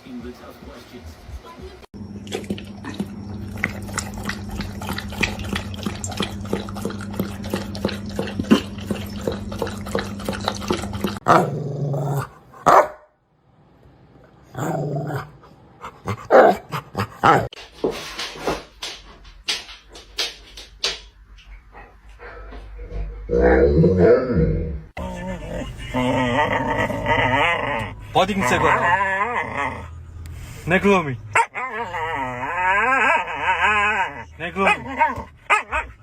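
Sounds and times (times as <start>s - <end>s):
dogs growling and barking: 2.2s - 13.1s, 14.3s - 17.6s, 21.8s - 30.0s, 31.3s - 36.0s.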